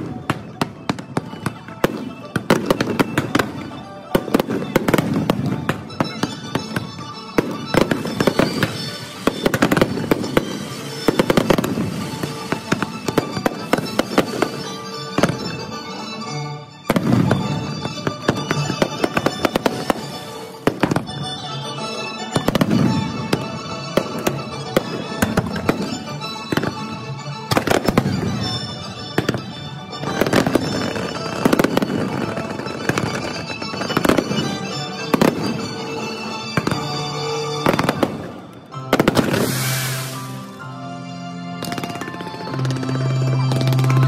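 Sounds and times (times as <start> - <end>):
fireworks booming and crackling: 0.0 - 40.7, 41.6 - 44.0
music: 0.0 - 44.0.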